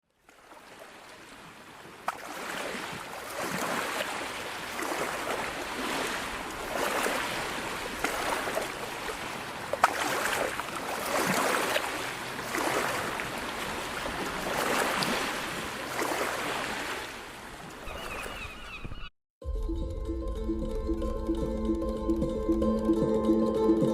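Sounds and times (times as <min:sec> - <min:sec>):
waves washing onto beach: 0:00.1 - 0:18.4.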